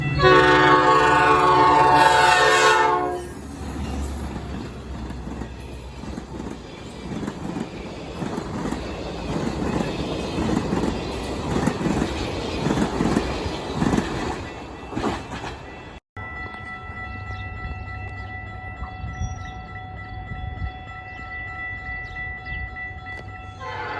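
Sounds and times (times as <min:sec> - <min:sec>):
train air horn: 0:00.0 - 0:03.4, 0:23.6 - 0:23.9
train rail rumble: 0:00.0 - 0:23.9.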